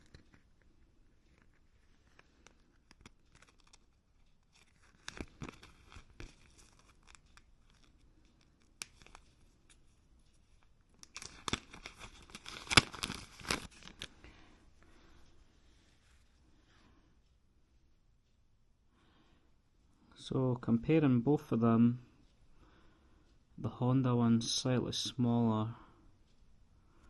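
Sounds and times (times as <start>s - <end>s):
crinkly rustling of packaging: 2.2s - 9.4s, 11.0s - 14.3s.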